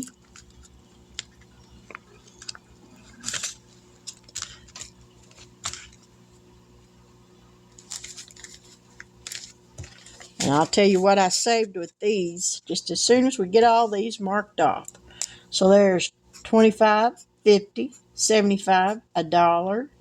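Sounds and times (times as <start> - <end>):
paper and plastic rustling: 0.0 - 6.1, 7.7 - 11.2
faint electrical hum: 0.0 - 20.0.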